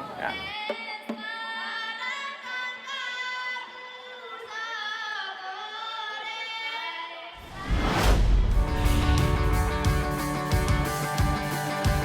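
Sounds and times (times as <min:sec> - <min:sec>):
loud noisy rush: 0:07.4 - 0:11.5.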